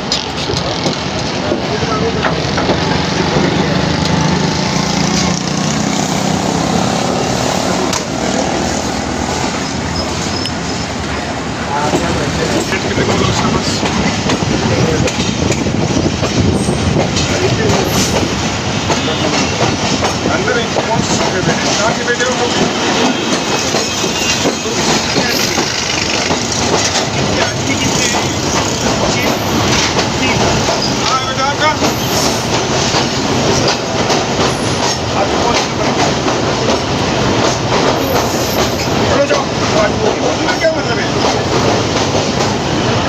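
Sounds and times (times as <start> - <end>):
train carriages rumbling: 0.0 - 43.0
wheels clacking over rail joints: 0.0 - 43.0
high wheel squeals: 9.6 - 10.9, 22.2 - 26.4, 29.3 - 32.5, 38.0 - 39.2.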